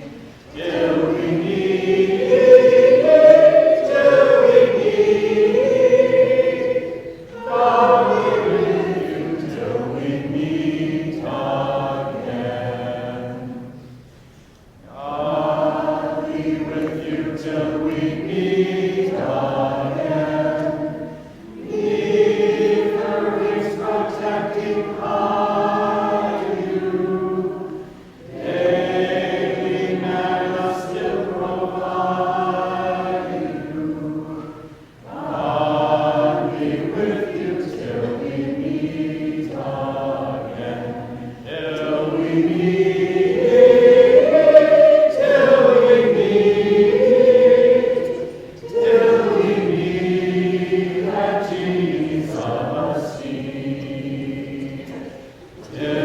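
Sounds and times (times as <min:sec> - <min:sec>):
vocal group singing: 0:00.0 - 0:56.0.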